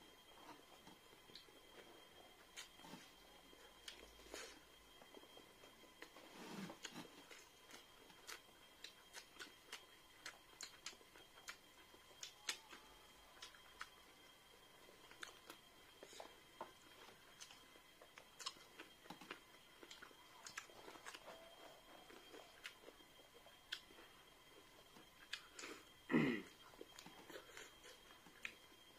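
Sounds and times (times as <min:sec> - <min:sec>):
chewing and lip-smacking: 0:00.3 - 0:26.0, 0:26.6 - 0:28.7.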